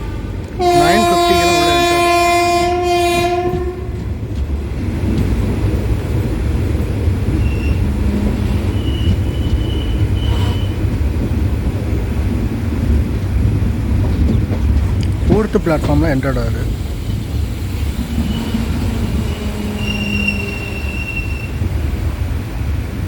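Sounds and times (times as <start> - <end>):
train horn: 0.0 - 4.1, 7.4 - 10.9, 18.0 - 21.7
train running rumble: 0.0 - 23.0.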